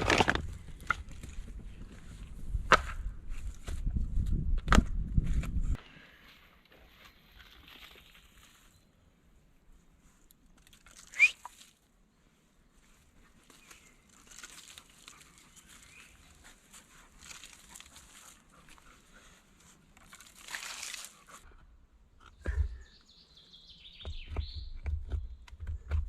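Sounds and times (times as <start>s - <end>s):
rustling and crinkling: 0.0s - 2.6s, 3.3s - 9.0s, 12.7s - 21.6s.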